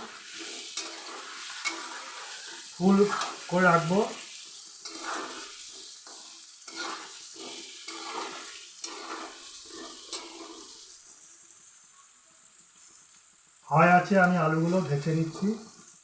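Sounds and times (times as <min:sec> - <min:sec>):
spoon scraping pan: 0:00.0 - 0:11.0, 0:14.5 - 0:16.0
potatoes sizzling in oil: 0:00.0 - 0:16.0.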